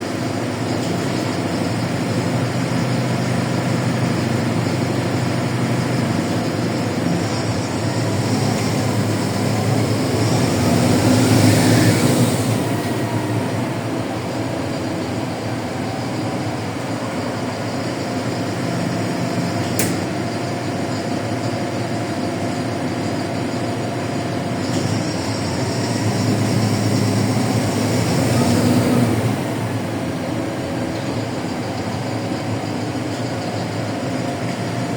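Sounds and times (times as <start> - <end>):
bus diesel engine: 0.0 - 34.9
road noise: 0.0 - 34.9
sharp click: 19.8 - 20.1.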